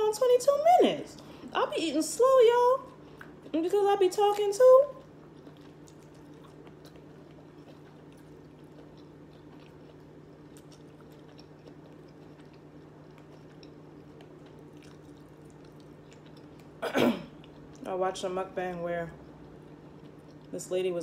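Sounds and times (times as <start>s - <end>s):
steady low hum: 0.0s - 21.0s
person chewing food: 2.8s - 3.6s, 4.9s - 17.9s, 19.2s - 20.6s.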